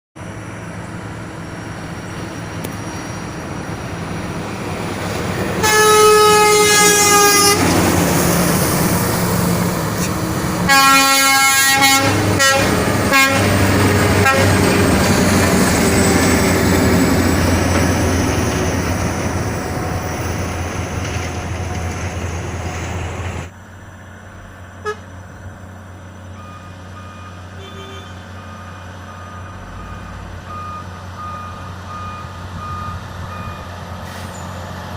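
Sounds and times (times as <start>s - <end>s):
tanker truck engine: 0.2s - 34.9s
truck horn blasts and toots: 5.6s - 7.7s, 10.6s - 14.8s, 24.8s - 25.1s, 26.4s - 30.3s.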